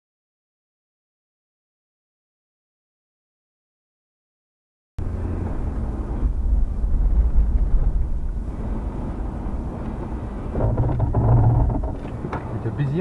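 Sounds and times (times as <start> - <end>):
moving car rumble: 5.0 - 13.0.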